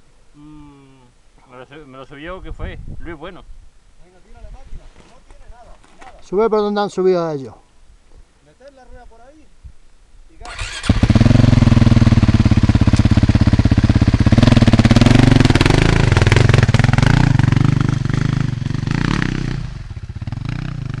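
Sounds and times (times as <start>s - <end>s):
dirt bike engine revving: 10.5s - 21.0s.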